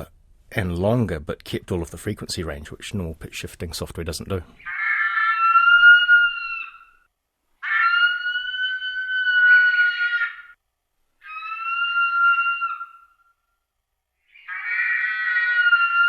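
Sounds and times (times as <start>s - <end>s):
eagle calls: 4.6s - 7.0s, 7.6s - 10.6s, 11.2s - 13.3s, 14.3s - 16.0s.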